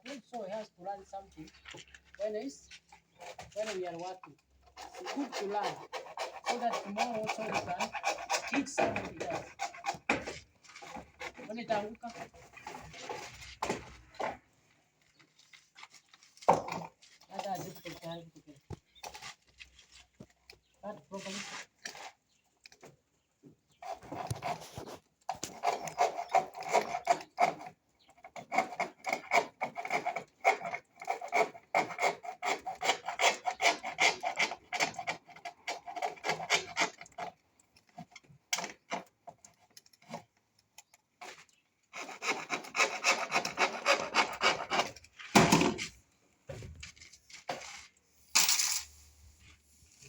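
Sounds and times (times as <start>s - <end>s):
hand saw sawing: 3.2s - 14.4s, 23.8s - 37.4s, 41.2s - 45.9s.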